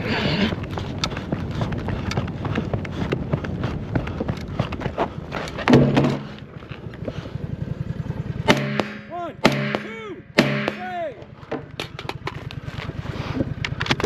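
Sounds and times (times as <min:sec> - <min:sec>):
low hum: 0:00.0 - 0:14.0
rapid footsteps: 0:00.2 - 0:07.3
rifle shots: 0:08.5 - 0:11.0.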